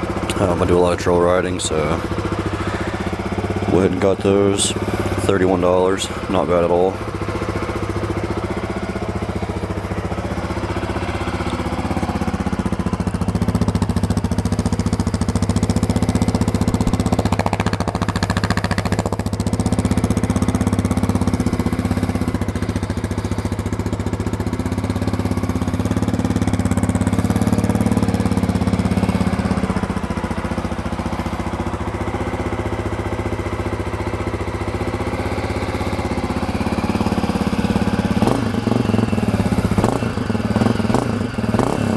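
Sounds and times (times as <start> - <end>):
motorcycle engine idling: 0.0 - 41.9.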